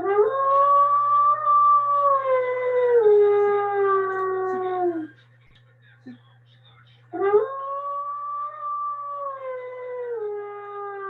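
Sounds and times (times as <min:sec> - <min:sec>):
dog howling: 0:00.0 - 0:05.1, 0:07.2 - 0:11.0.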